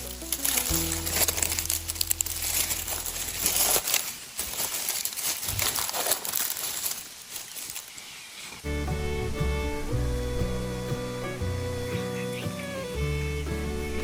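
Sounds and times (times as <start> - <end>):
plants rustling and snapping: 0.0 - 8.6
low steady tone: 8.7 - 14.0.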